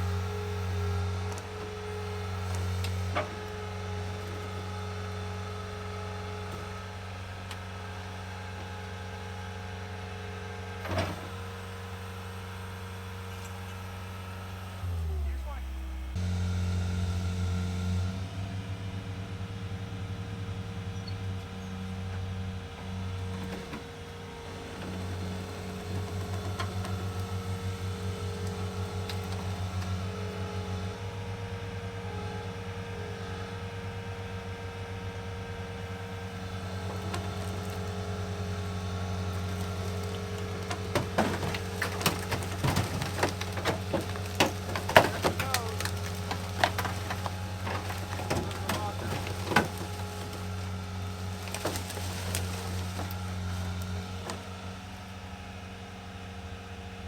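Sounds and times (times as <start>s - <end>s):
vehicle engine running: 0.0s - 57.0s
wood and brush snapping: 23.3s - 30.1s, 36.4s - 54.9s.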